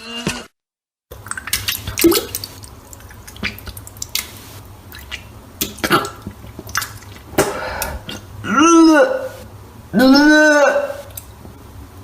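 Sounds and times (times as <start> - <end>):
small splashes: 1.1 - 7.6
wet splattering and dripping: 1.1 - 7.6.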